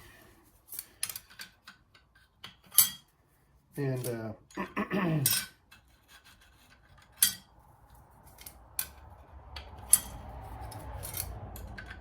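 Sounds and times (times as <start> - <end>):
metal clutch plates clinking: 8.3 - 12.0.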